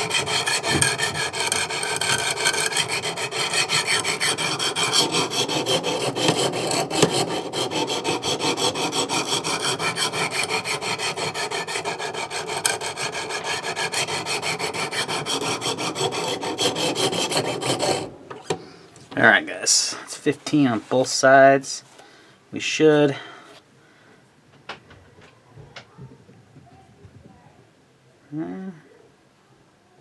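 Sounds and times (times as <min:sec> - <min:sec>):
sharpening stones rasping on knife: 0:00.0 - 0:18.1.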